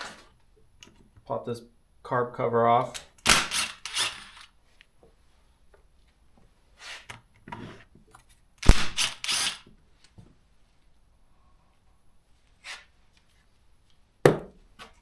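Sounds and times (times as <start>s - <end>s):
plastic parts clattering: 3.0s - 4.5s, 8.1s - 9.7s
hand tools clicking: 3.2s - 4.5s, 8.6s - 9.7s
scraping rattles: 3.3s - 4.5s.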